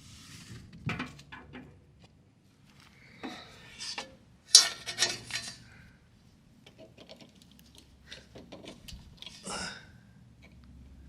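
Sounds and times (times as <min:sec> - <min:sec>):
scrape: 0:00.0 - 0:00.7, 0:03.2 - 0:05.7.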